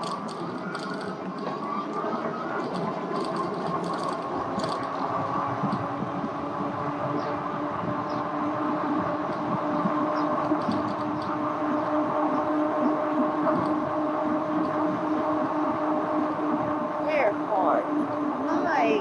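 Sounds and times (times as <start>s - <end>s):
electric bike motor whine: 0.0s - 18.9s.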